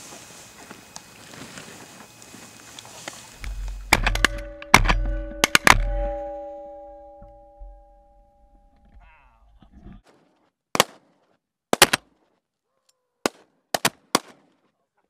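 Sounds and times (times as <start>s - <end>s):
shotgun blasts: 3.4s - 6.4s
ringing tone: 3.4s - 9.0s
low rumble: 3.4s - 10.0s.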